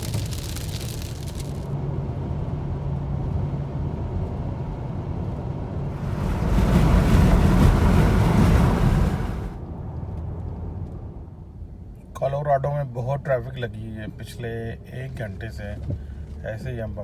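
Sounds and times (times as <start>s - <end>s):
low rumble: 5.7s - 12.0s
wind buffeting microphone: 5.8s - 9.8s.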